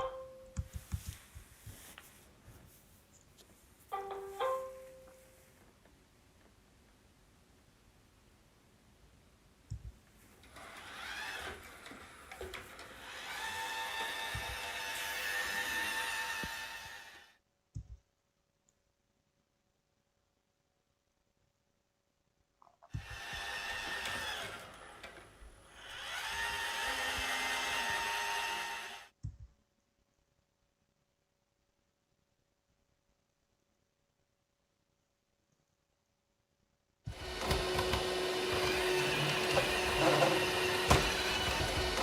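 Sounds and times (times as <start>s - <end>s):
robot vacuum motors whirring: 10.4s - 17.3s, 22.9s - 29.1s, 37.1s - 42.0s.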